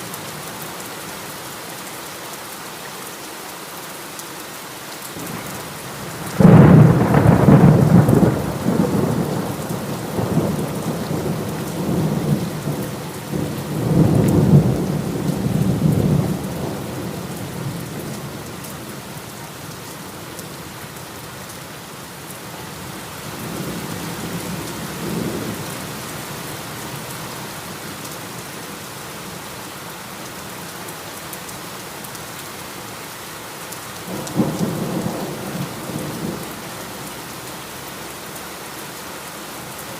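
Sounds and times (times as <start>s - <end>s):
heavy rain: 0.0s - 39.9s
thunder rumbling: 5.2s - 18.4s.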